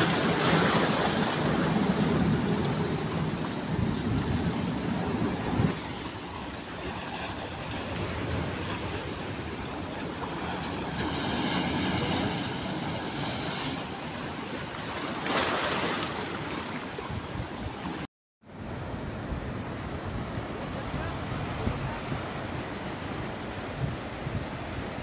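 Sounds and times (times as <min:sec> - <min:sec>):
wind rumbling on microphone: 0:00.0 - 0:14.6, 0:16.8 - 0:25.0
sea surf breaking: 0:00.0 - 0:18.1.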